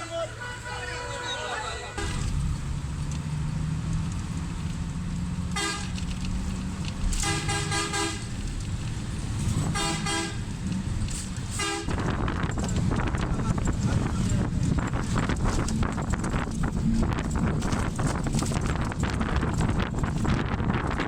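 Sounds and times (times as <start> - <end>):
vehicle engine rumble: 0.0 - 21.0
vehicle horn toots: 0.1 - 2.4, 5.5 - 6.0, 7.2 - 8.4, 9.7 - 10.5, 11.6 - 12.1.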